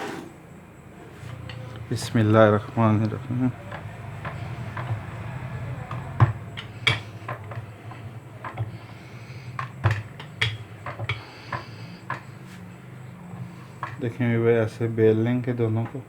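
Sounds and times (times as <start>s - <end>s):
rolling pin knocking on board: 3.6s - 8.8s, 9.6s - 12.3s.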